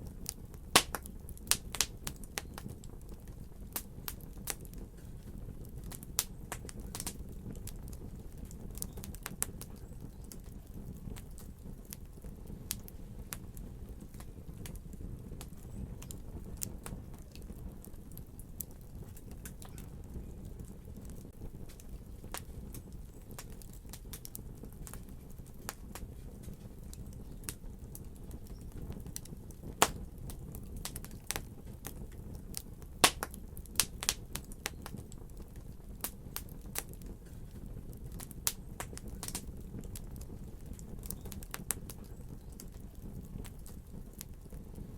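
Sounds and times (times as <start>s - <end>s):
low rumble of burning: 0.0s - 44.9s
wood fire crackling: 0.0s - 44.9s.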